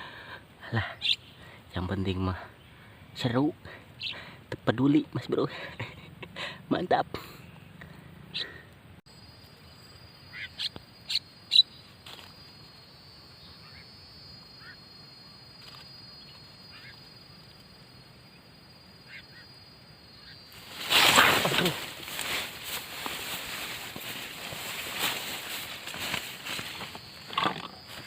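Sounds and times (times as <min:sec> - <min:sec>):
sharp bird calls: 0:00.8 - 0:01.5, 0:03.8 - 0:04.2, 0:09.5 - 0:12.4, 0:13.3 - 0:14.9, 0:15.6 - 0:28.0
loud rustling: 0:20.5 - 0:28.0.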